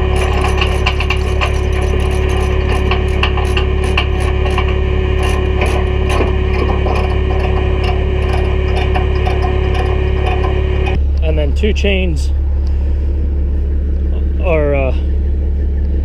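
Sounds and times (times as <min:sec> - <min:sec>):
metallic clicks and clanks: 0:00.0 - 0:11.0
diesel engine idling: 0:00.0 - 0:16.0.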